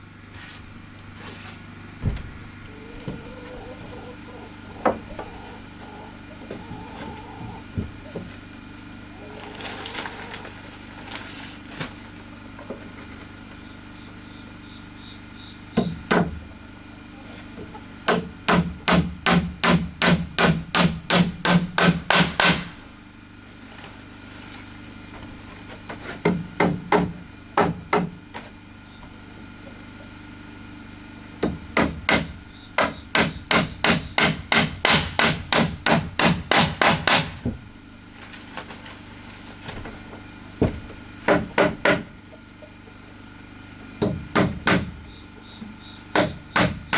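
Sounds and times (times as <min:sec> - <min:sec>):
hammering on wood: 0:15.8 - 0:16.5, 0:18.1 - 0:22.8, 0:26.0 - 0:28.4, 0:31.4 - 0:37.6, 0:40.6 - 0:42.2, 0:44.0 - 0:45.0, 0:46.1 - 0:46.9.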